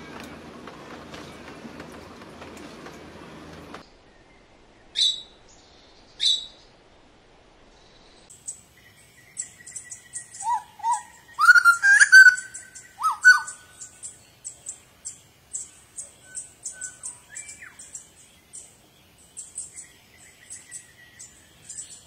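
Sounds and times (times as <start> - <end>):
songbirds chirping: 0.0 - 22.0
whistled bird notes: 4.1 - 6.7, 8.0 - 18.7.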